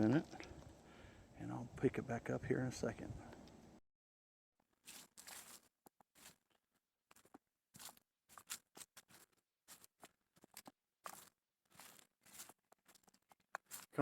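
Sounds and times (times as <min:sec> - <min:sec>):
crunching footsteps on a trail: 0:04.7 - 0:14.0.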